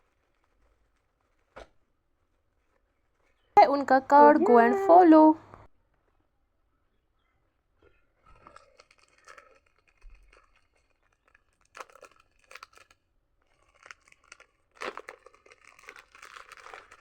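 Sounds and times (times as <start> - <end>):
packaging tearing and crinkling: 8.3 - 17.0.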